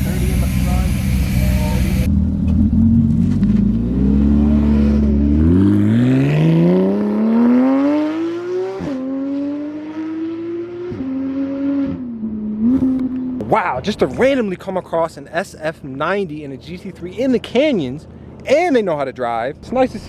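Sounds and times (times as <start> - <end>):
sports car engine accelerating: 0.0 - 14.4.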